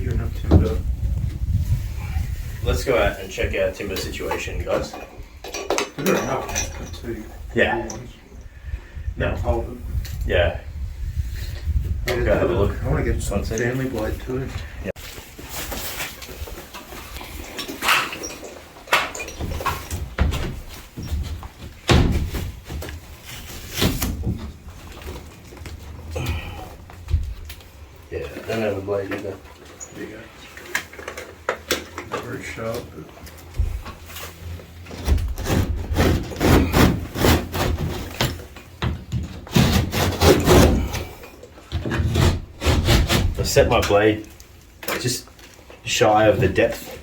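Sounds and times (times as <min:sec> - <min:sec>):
knocks and thumps: 0:00.0 - 0:01.4, 0:18.9 - 0:27.5, 0:34.9 - 0:43.5
saw rasping through plasterboard: 0:35.4 - 0:38.3, 0:39.5 - 0:41.2, 0:41.9 - 0:43.5.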